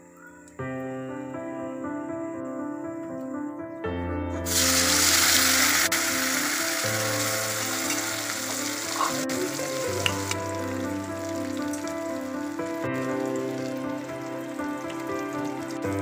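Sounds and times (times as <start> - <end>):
background music with slow bass: 3.9 - 16.0
food sizzling in a wok: 4.5 - 16.0.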